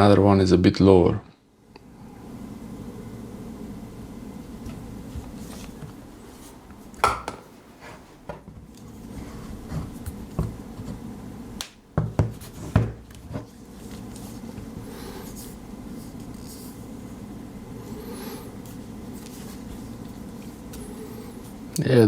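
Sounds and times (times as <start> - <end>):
hard drives knocking on desk: 7.0 - 7.5.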